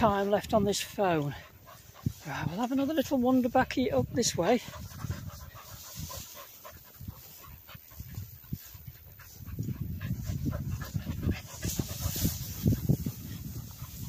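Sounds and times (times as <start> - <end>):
dog panting: 0.0 - 14.0.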